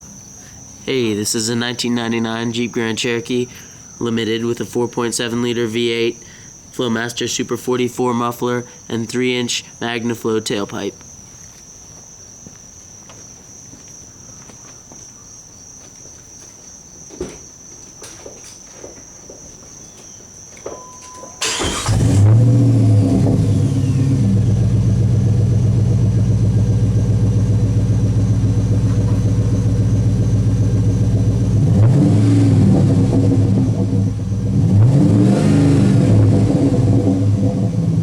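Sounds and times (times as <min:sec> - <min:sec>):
crickets chirping: 0:00.0 - 0:38.0
car engine starting and idling: 0:20.8 - 0:38.0
engine revving: 0:21.4 - 0:38.0.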